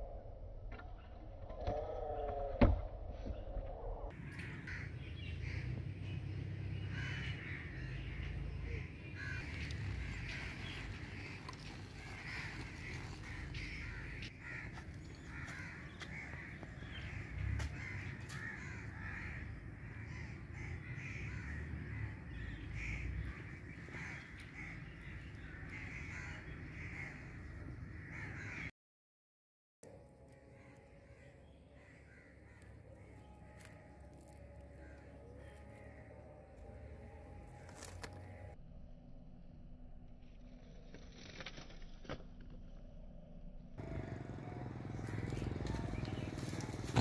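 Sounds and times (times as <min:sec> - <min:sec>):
birds calling: 0:03.2 - 0:28.7, 0:30.4 - 0:38.6, 0:43.8 - 0:47.0.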